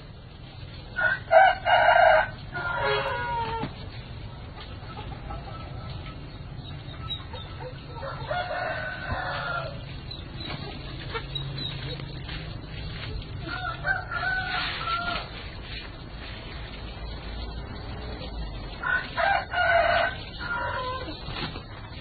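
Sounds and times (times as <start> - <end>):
rooster crowing: 1.0 - 3.6, 7.9 - 9.8, 13.4 - 15.4, 18.8 - 21.1.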